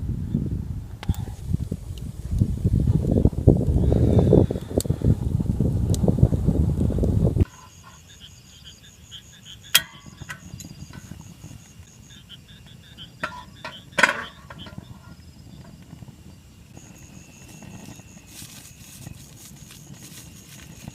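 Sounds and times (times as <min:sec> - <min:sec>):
insect chirping: 0:07.4 - 0:20.9.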